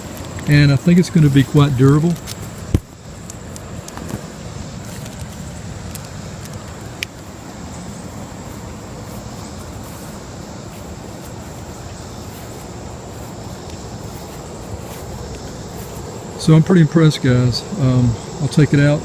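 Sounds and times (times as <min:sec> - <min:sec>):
low steady background noise: 0:00.0 - 0:19.0.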